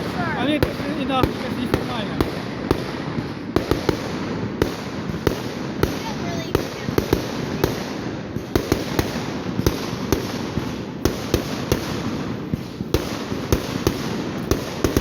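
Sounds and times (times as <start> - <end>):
fireworks rumble and crackle: 0.0 - 15.0
sharp fireworks bangs: 0.0 - 15.0.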